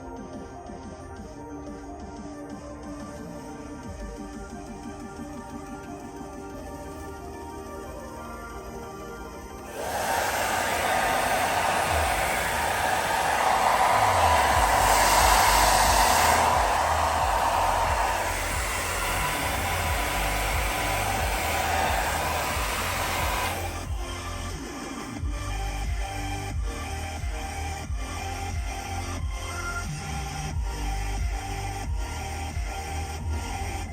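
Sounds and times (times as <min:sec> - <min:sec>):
hair dryer blowing: 0:09.7 - 0:24.4.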